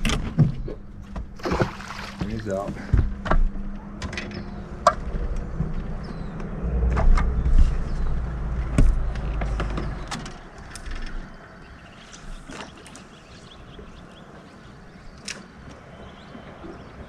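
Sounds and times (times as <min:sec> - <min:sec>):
boat motor running: 0:00.0 - 0:15.0
sharp knocks and clicks: 0:08.6 - 0:11.3.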